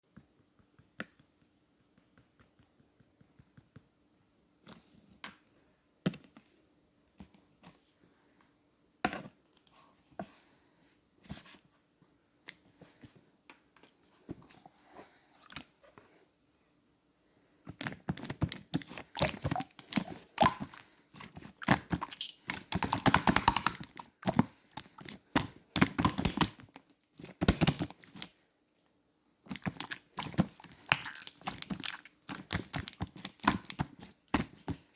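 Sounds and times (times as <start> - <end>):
slime crackling and squelching: 17.8 - 28.3, 29.5 - 34.9
slime squishing and clicking: 17.8 - 28.3, 29.5 - 34.8.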